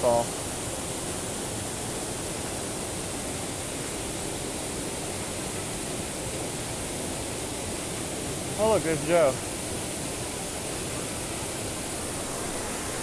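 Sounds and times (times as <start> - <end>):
waterfall rushing: 10.6 - 13.0.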